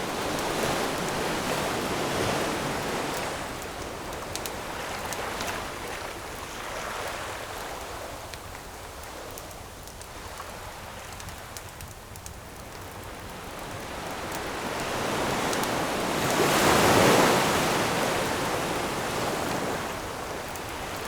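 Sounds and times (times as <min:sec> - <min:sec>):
campfire popping and crackling: 0:00.0 - 0:06.5, 0:07.6 - 0:14.6.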